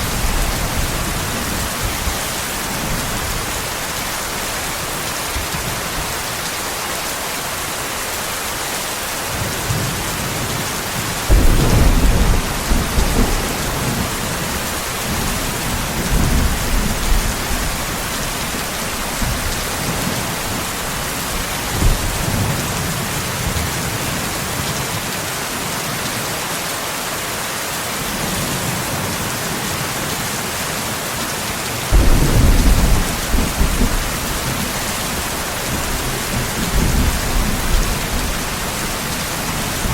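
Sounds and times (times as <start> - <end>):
heavy rain hissing: 0.0 - 39.9
thunder rumbling: 11.2 - 23.6, 31.9 - 39.9.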